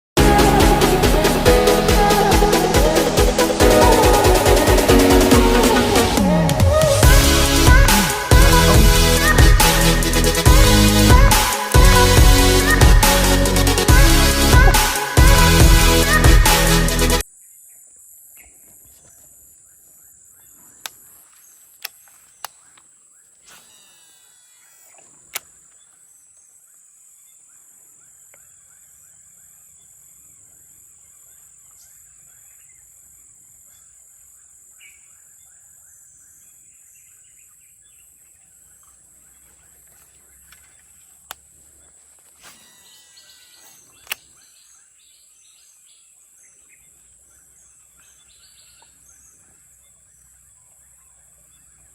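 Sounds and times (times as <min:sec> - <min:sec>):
sharp clicks: 0:21.8 - 0:22.9, 0:24.8 - 0:25.8, 0:43.8 - 0:44.4
high-pitched insect drone: 0:23.5 - 0:25.0, 0:42.4 - 0:44.0.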